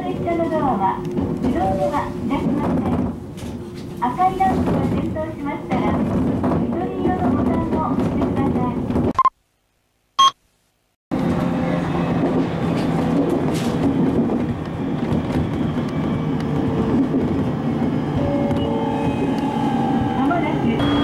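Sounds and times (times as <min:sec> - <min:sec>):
train running heard from inside: 0:00.0 - 0:09.1, 0:11.1 - 0:21.0
short high beep: 0:20.8 - 0:21.0.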